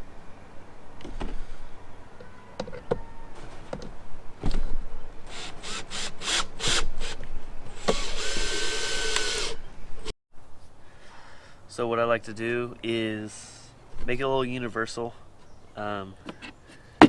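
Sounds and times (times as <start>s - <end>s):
power tool whirring: 5.2s - 10.1s.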